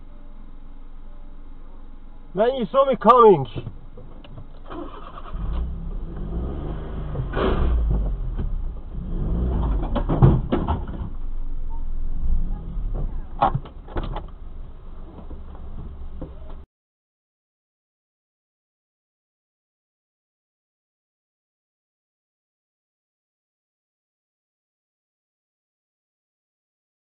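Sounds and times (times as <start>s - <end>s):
car engine idling: 0.0s - 16.6s
sharp clicks and knocks: 9.5s - 11.2s, 12.9s - 14.4s.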